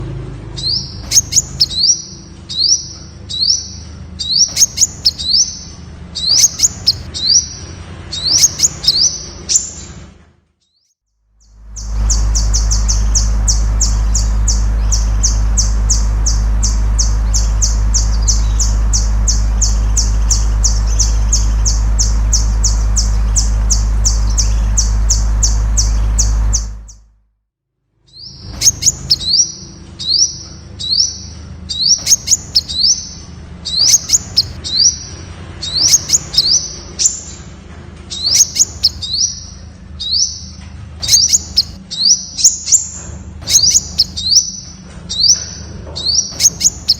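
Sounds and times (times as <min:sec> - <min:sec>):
bird calling high thin notes: 0:00.6 - 0:09.9, 0:28.1 - 0:37.4, 0:38.1 - 0:42.8
bird high chirps in clusters: 0:00.6 - 0:10.0, 0:10.6 - 0:27.0, 0:28.1 - 0:37.4, 0:38.1 - 0:46.9
low hum: 0:11.4 - 0:27.2.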